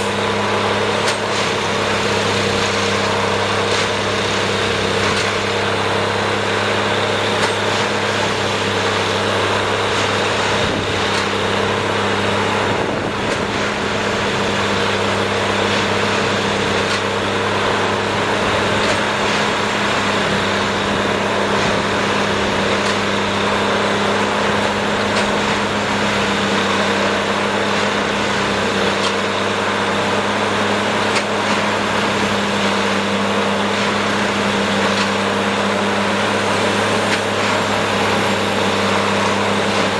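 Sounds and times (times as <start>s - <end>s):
machine drone: 0.0s - 39.9s.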